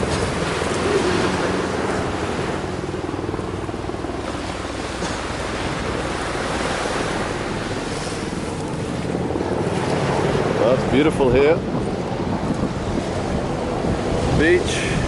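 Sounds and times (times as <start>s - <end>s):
ocean surf washing on beach: 0.0s - 15.0s
wind buffeting microphone: 0.0s - 15.0s.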